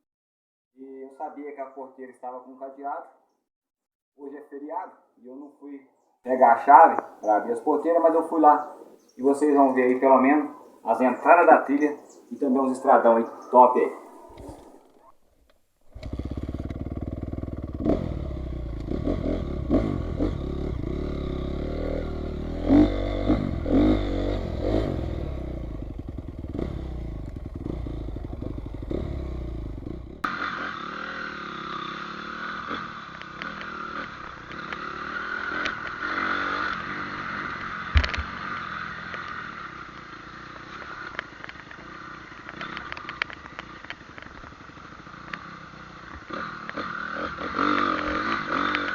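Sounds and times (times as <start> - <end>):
motorcycle engine running: 6.3 - 15.2, 15.8 - 48.9.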